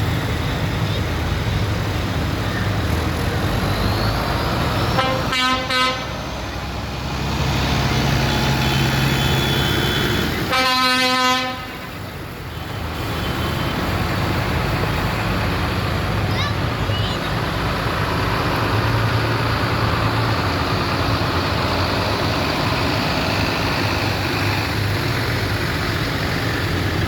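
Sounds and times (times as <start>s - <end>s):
tractor engines running: 0.0s - 27.0s
horn blasts: 4.9s - 6.2s, 8.0s - 11.9s.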